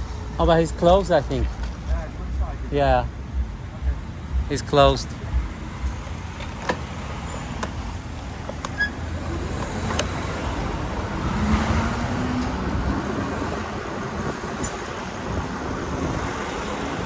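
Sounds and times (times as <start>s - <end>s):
road traffic noise: 0.0s - 17.0s
vehicle passing: 0.0s - 17.0s
wind rumble on microphone: 7.8s - 17.0s.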